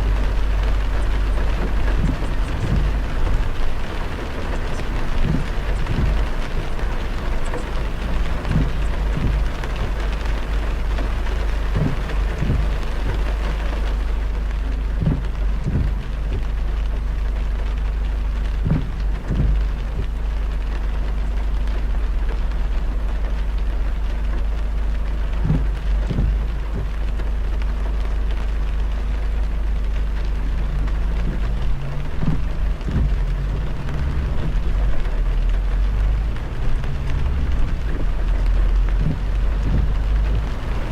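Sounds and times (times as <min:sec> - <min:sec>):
short low thuds: 0:00.0 - 0:14.0, 0:14.9 - 0:16.7, 0:18.5 - 0:20.7, 0:25.4 - 0:27.2, 0:30.0 - 0:40.9
heavy rain on a car: 0:00.0 - 0:40.9
low road rumble: 0:00.0 - 0:40.9.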